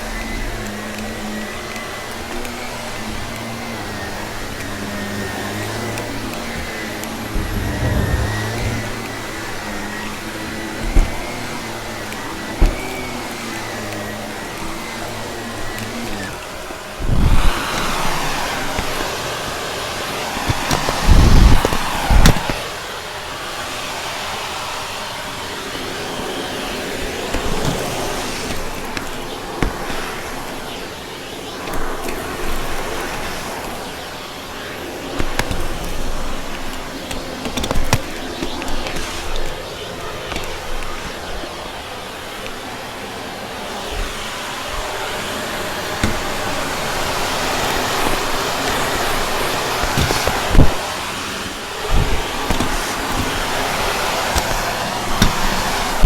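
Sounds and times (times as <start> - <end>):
vacuum cleaner suction: 0.0 - 56.0
debris clicking in vacuum: 4.5 - 19.2
low knock: 7.3 - 9.1.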